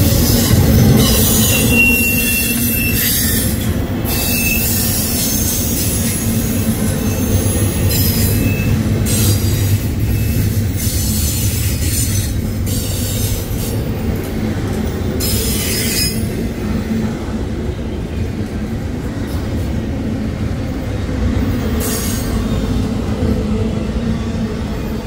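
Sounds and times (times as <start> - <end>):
freight train wheels rumbling: 0.0 - 25.0
high-pitched wheel squeals: 0.2 - 13.1.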